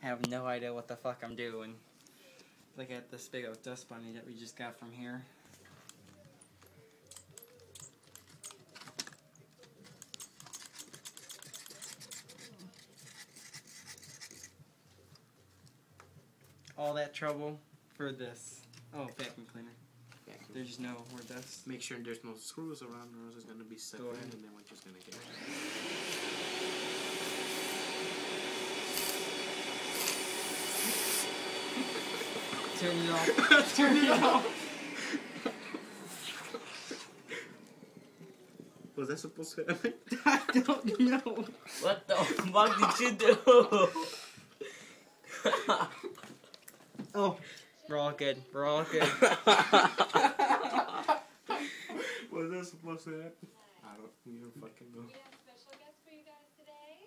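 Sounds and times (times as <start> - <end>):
hands handling laptop parts: 5.4 - 15.0
vacuum cleaner running: 25.1 - 39.3.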